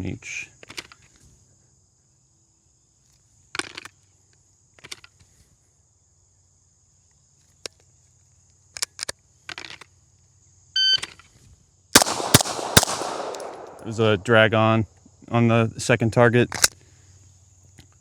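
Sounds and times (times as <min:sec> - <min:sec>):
pistol shot: 0:12.0 - 0:14.3.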